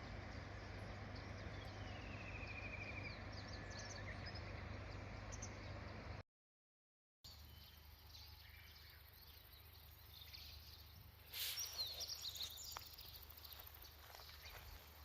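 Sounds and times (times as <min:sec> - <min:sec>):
high bird chirps: 0:07.3 - 0:14.9
short rush of noise: 0:11.3 - 0:12.0.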